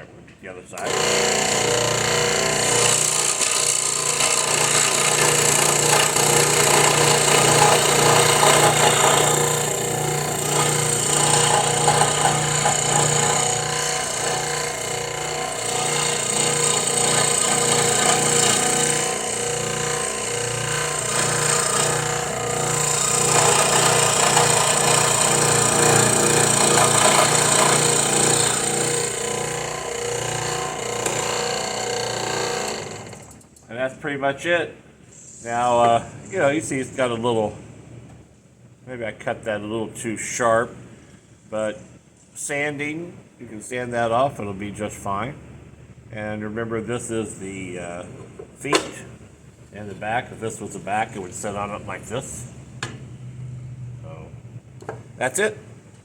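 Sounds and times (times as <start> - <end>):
motor hum: 0.8 - 33.4
scroll saw cutting wood: 0.8 - 33.4.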